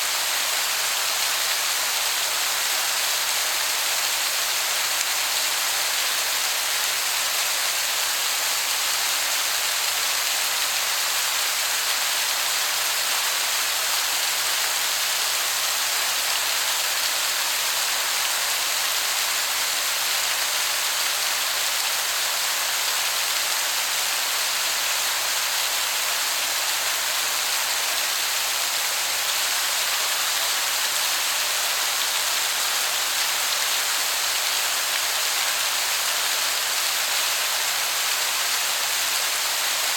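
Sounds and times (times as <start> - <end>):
waterfall hissing: 0.0 - 39.9.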